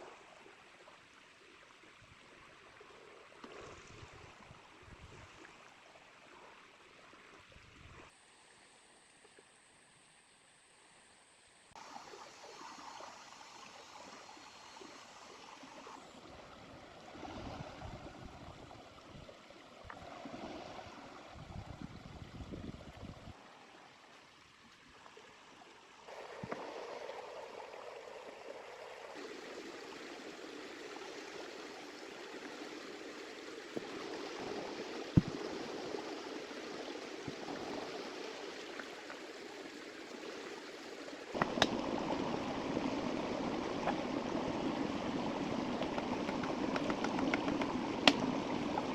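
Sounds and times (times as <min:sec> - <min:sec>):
river water rushing and gurgling: 0:11.8 - 0:48.9
sharp clicks or knocks: 0:41.4 - 0:41.8, 0:45.8 - 0:48.2.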